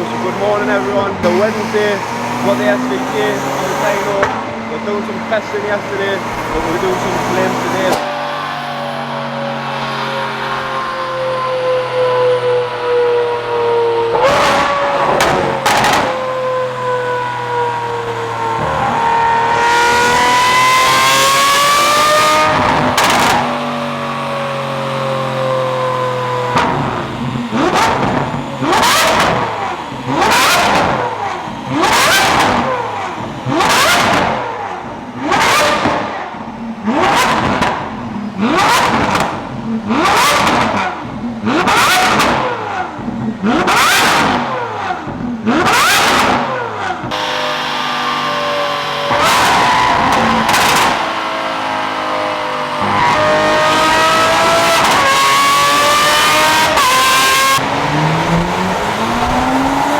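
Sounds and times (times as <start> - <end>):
car engine revving: 0.0 - 59.9
sharp exhaust crack: 0.5 - 12.1.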